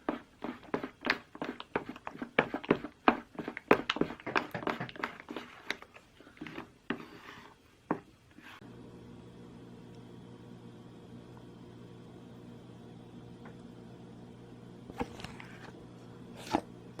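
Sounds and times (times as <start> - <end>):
steady hum: 8.3 - 17.0.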